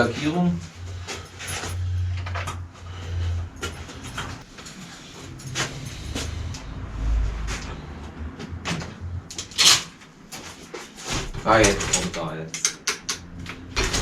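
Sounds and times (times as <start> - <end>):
low rumble: 0.0 - 10.3
tools being handled: 9.3 - 11.0
sharp loud clatter: 9.4 - 10.0.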